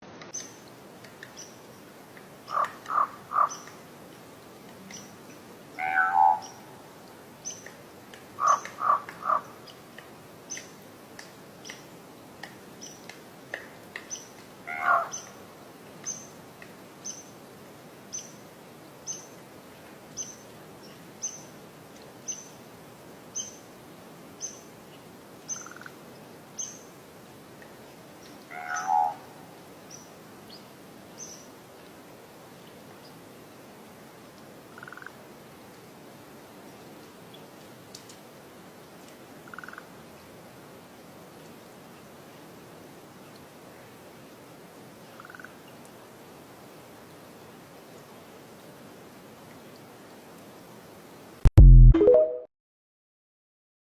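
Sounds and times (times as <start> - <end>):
lower bird calls: 2.5 - 3.8, 8.4 - 9.5, 28.5 - 29.2.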